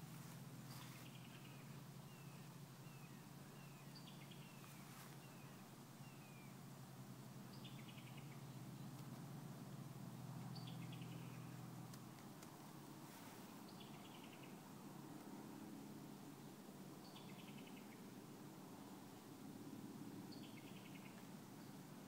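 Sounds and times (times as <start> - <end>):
faint bird calls: 0.0 - 6.6, 20.3 - 21.8.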